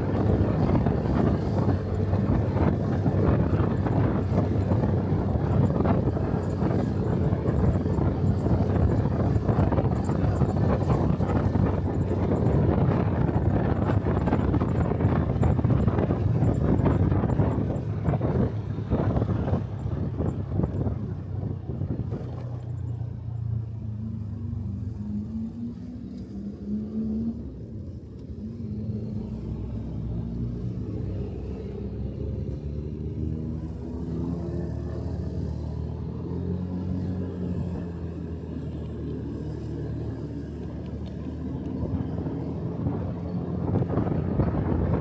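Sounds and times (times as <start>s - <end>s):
road and wind noise: 0.0s - 45.0s.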